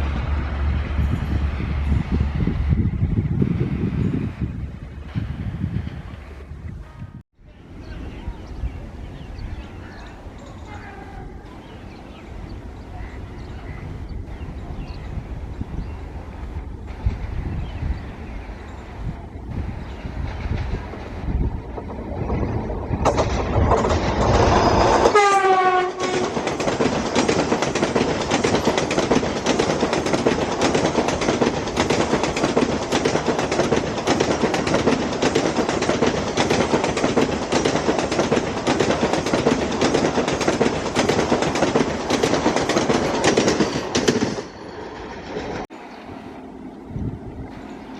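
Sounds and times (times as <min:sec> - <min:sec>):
train wheels clattering over rail joints: 0:19.5 - 0:45.7
train horn: 0:24.7 - 0:26.4.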